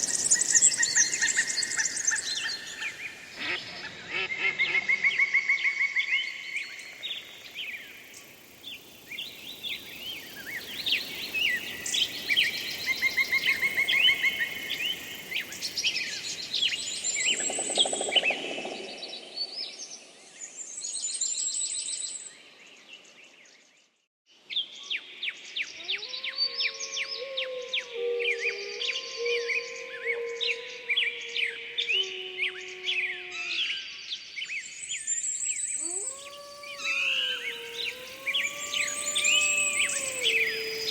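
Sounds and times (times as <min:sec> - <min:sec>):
songbirds chirping and trilling: 0:24.5 - 0:40.9.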